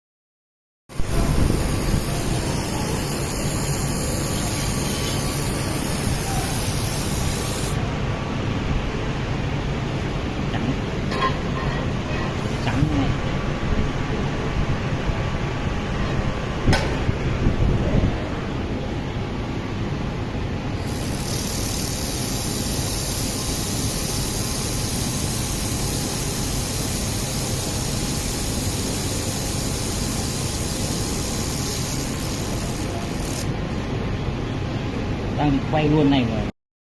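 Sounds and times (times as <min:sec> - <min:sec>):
laser welder hissing: 0:00.9 - 0:07.8, 0:20.8 - 0:33.5.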